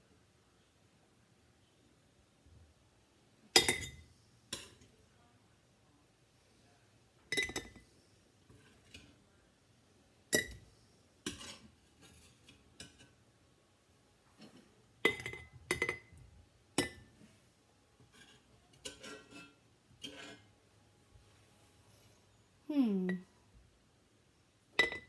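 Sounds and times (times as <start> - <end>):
scoop clinking against glass jars: 7.3 - 7.8.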